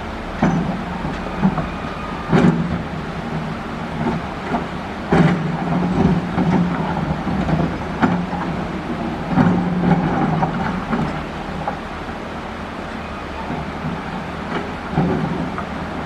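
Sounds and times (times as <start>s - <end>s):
excavator diesel engine under load: 0.0s - 16.0s.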